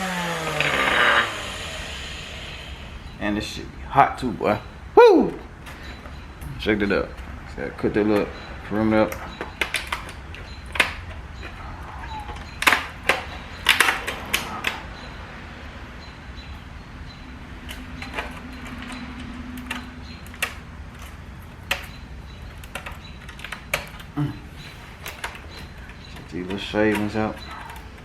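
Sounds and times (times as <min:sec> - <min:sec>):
low hum: 0:00.0 - 0:07.6
clicks and knocks of hard parts: 0:08.1 - 0:15.1, 0:17.6 - 0:28.0.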